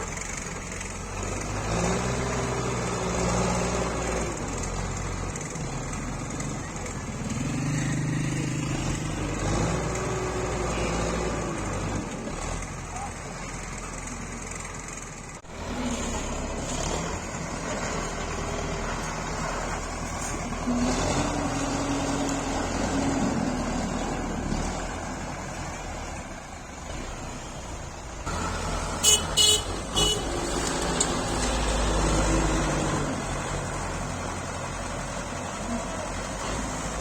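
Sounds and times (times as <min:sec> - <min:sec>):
tractor engine running: 0:00.0 - 0:37.0
loud horn toots: 0:28.9 - 0:30.6.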